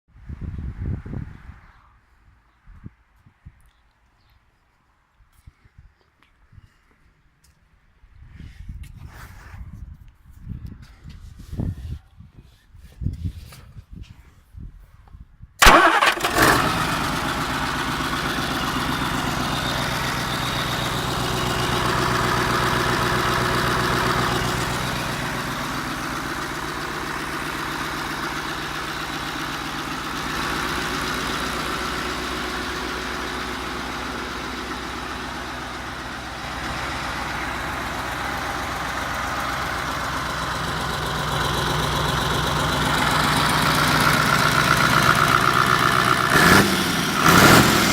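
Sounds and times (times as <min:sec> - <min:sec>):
diesel engine starting and running: 0:15.6 - 0:47.9.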